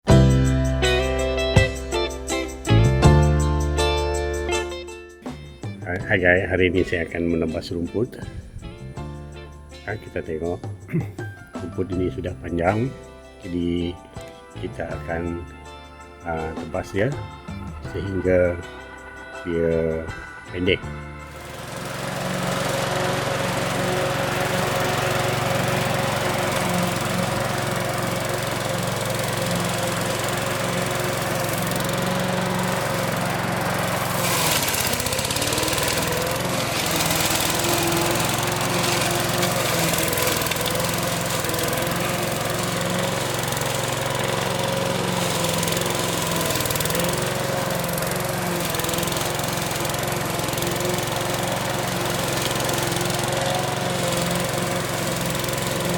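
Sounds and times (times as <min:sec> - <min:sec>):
lawn mower engine cutting grass: 0:11.5 - 0:55.9.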